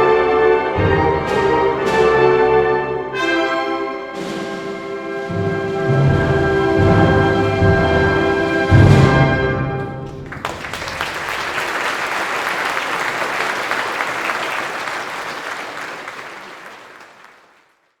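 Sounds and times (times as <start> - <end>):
audience applause: 10.2 - 18.0.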